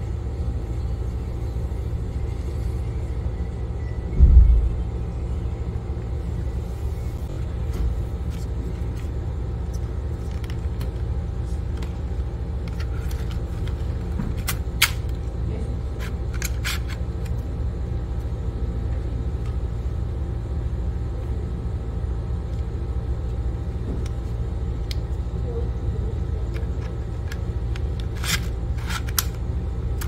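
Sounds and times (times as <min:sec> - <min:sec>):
low rumble: 0:02.0 - 0:10.6.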